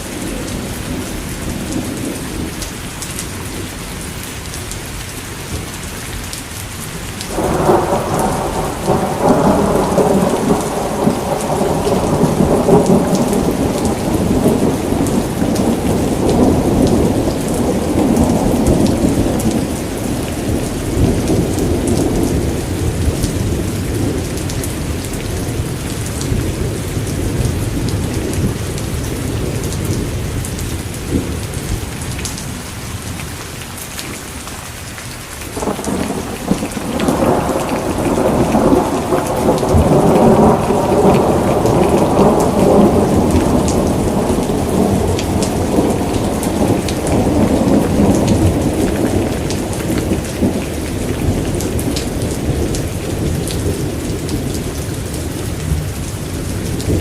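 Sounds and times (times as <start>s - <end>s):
steady rain: 0.0s - 57.0s
thunder rolling: 7.3s - 31.9s, 35.6s - 57.0s.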